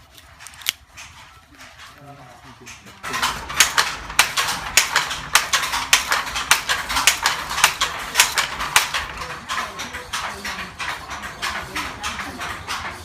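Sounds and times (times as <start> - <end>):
rapid sharp clicking: 0.1 - 13.0.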